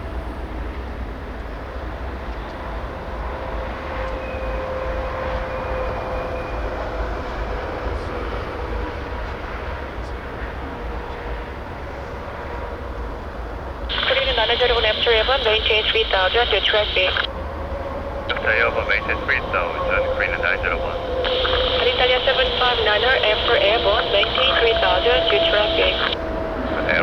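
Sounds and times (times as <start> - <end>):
jet engines whining: 13.9 - 27.0.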